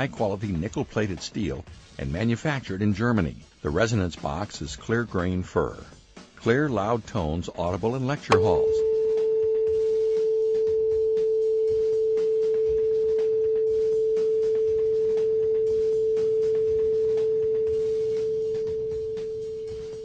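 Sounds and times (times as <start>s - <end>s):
tuning fork ringing: 8.3s - 20.0s.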